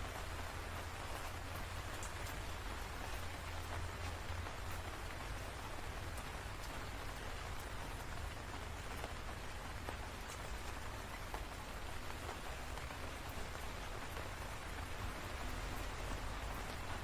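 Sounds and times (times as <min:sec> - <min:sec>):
steady rain falling: 0:00.0 - 0:17.0
raindrops ticking: 0:00.1 - 0:17.0.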